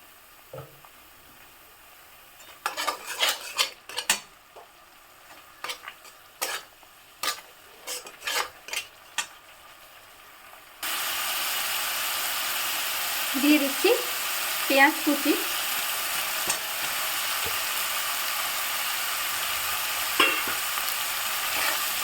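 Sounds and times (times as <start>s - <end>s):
frying sizzle: 0.0s - 22.0s
spoon scraping a pan: 2.4s - 4.3s, 5.3s - 9.4s, 15.7s - 17.8s, 20.0s - 22.0s.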